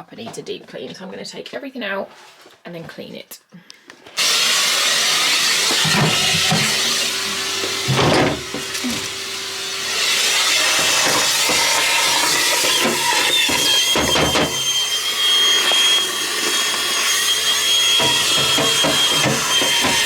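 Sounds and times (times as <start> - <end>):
vacuum cleaner running: 4.2 - 20.0.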